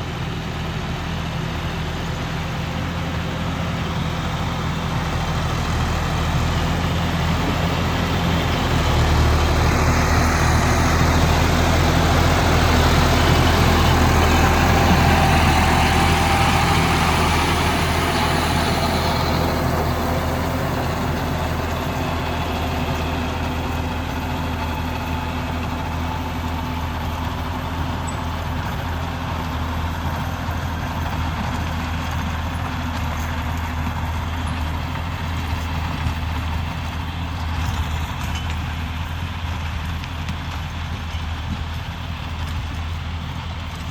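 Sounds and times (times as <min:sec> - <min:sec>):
tractor diesel engine running: 0:00.0 - 0:43.9.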